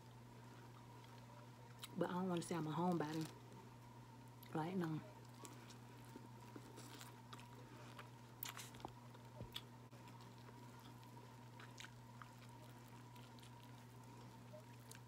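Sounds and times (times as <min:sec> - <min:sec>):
faint steady hum: 0:00.0 - 0:15.0
person chewing: 0:05.2 - 0:15.0.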